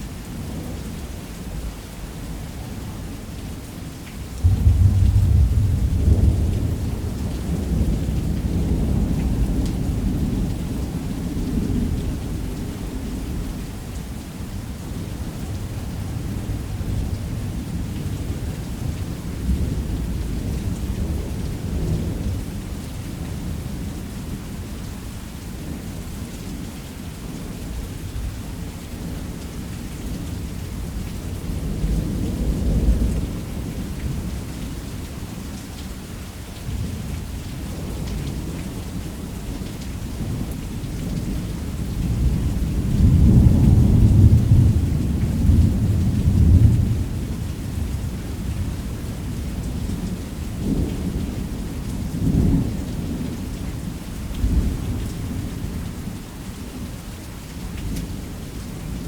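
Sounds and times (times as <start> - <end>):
heavy rain: 0.0 - 59.0
rolling thunder: 4.4 - 13.6, 42.0 - 48.5.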